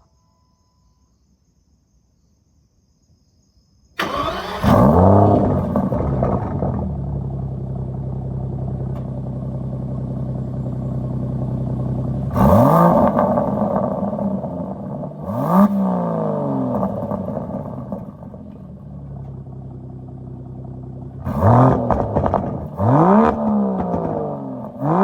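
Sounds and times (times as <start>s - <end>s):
engine idling: 4.0s - 15.4s, 16.4s - 24.9s
car engine starting and revving: 4.0s - 25.0s.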